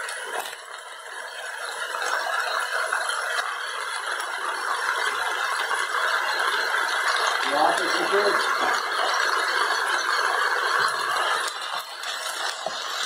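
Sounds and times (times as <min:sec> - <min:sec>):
food sizzling in a pan: 0:00.0 - 0:13.0
wooden spatula scraping a pan: 0:10.8 - 0:13.0.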